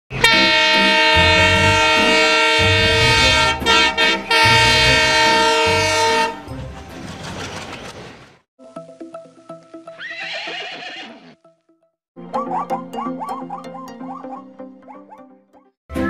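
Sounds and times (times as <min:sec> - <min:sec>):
locomotive horn blasts: 0:00.1 - 0:06.5
train rumble: 0:00.2 - 0:08.4.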